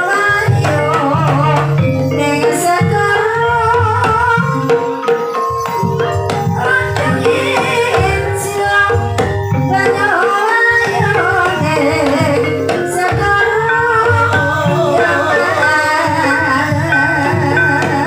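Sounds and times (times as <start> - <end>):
hand drums: 0.0 - 18.0
tuned metal percussion: 0.0 - 18.0
person singing: 6.5 - 18.0.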